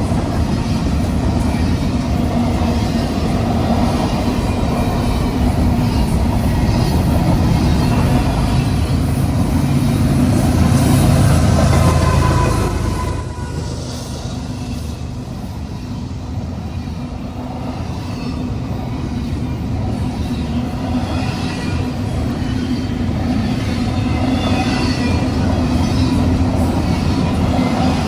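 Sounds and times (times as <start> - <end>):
freight train rumbling past: 0.0 - 28.0.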